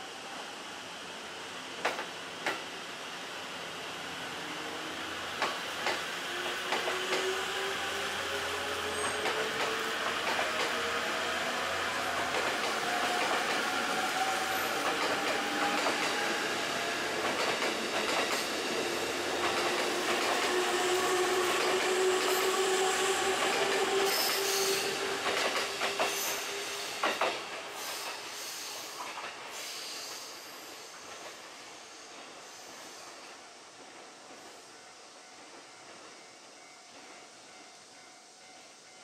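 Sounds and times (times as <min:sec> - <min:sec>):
electric train running noise: 0:03.6 - 0:31.5.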